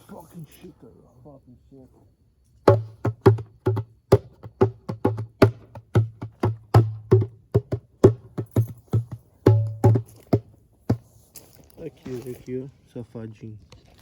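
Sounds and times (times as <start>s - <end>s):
djembe hand drumming: 2.7s - 10.1s.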